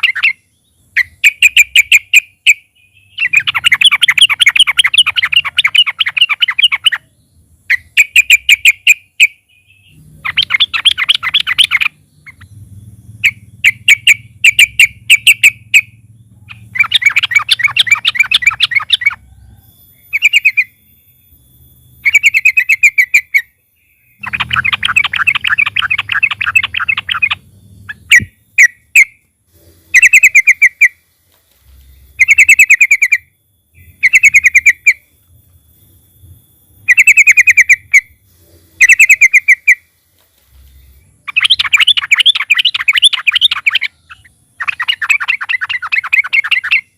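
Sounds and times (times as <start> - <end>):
bulbul singing rapid chattering phrases: 0.0 - 46.9.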